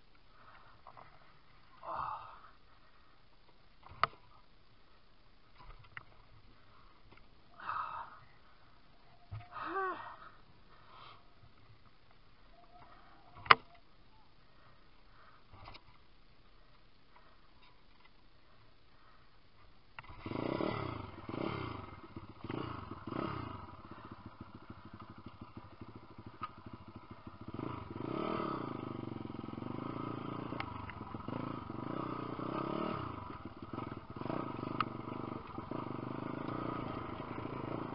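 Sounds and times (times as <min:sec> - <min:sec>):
motorbike engine revving: 0:20.0 - 0:37.9.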